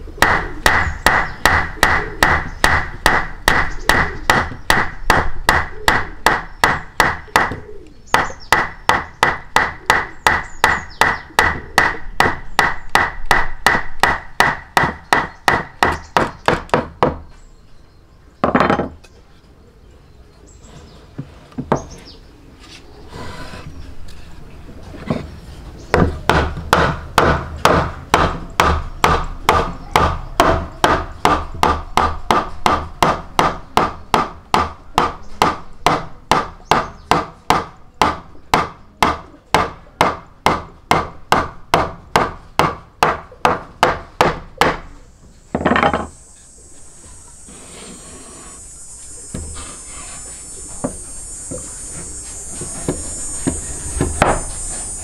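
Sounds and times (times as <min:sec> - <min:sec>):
sharp knocks: 0:00.2 - 0:07.6, 0:08.2 - 0:17.2, 0:25.9 - 0:44.8, 0:45.5 - 0:46.1
faint high hiss: 0:44.9 - 0:55.0.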